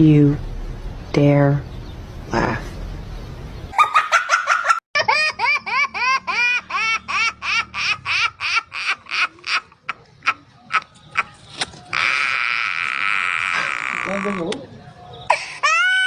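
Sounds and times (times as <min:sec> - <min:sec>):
baby giggling: 0:03.8 - 0:11.4.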